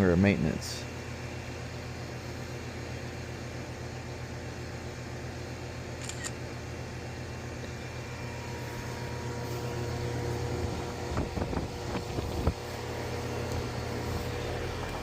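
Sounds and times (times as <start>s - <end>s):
air conditioner unit humming: 0.0s - 15.0s.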